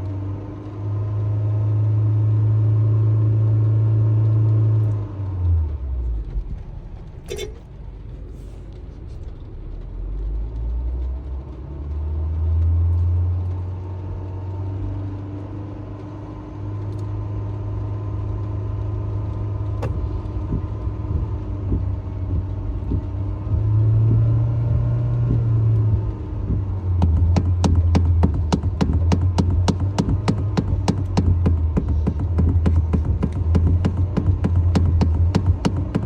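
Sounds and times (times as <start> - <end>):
car engine rumbling and revving: 0.0 - 36.0
fast ticking: 25.3 - 36.0.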